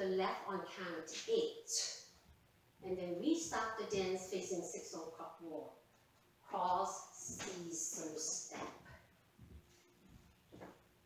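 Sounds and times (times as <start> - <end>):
faint steady hum: 0.0 - 11.0
soft footsteps on floor: 5.9 - 11.0.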